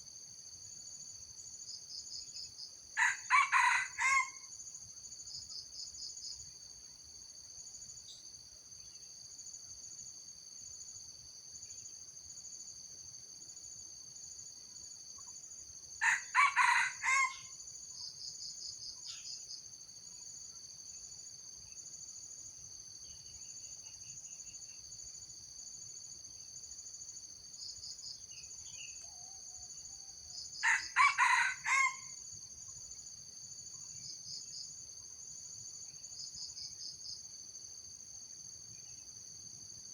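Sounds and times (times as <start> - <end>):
insect drone with pulsing trills: 0.0 - 39.9
rooster crowing: 3.0 - 4.5, 16.0 - 17.5, 30.6 - 32.2.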